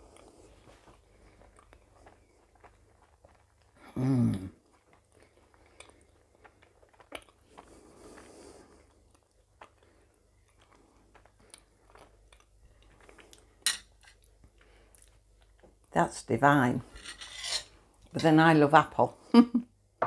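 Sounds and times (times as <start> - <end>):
person chewing: 0.0 - 15.9.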